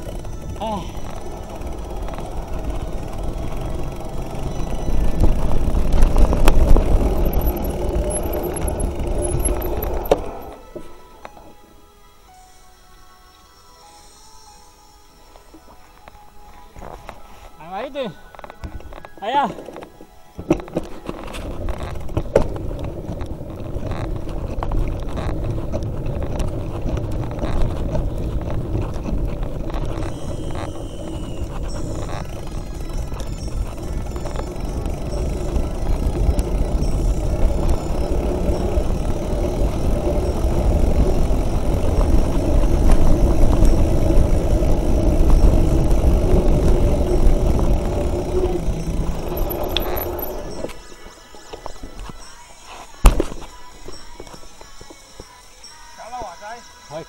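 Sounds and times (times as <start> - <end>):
bike tyres rumbling over rocks: 0.0 - 10.8, 20.4 - 52.2
faint high brake squeal: 3.5 - 6.3, 29.8 - 38.9
wind on microphone: 21.5 - 50.7.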